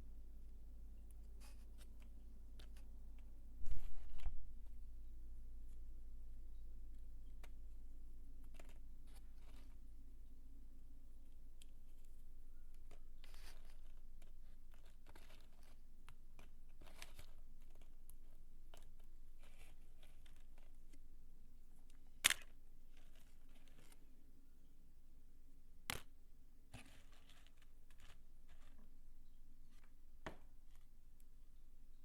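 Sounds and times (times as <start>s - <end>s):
soap crumbling and rustling: 12.7s - 21.0s, 21.8s - 24.2s, 25.9s - 31.0s.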